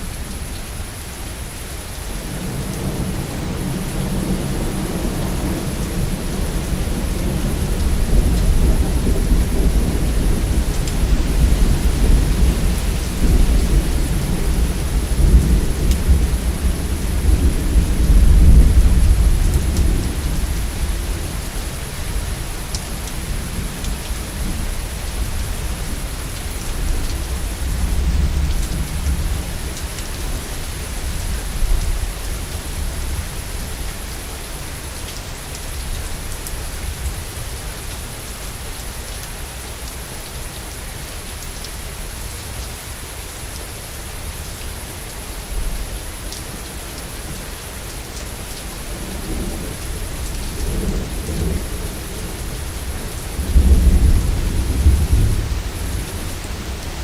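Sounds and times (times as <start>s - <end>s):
heavy rain falling: 0.0s - 57.0s
low thunder rumbling: 2.1s - 33.2s, 48.8s - 57.0s.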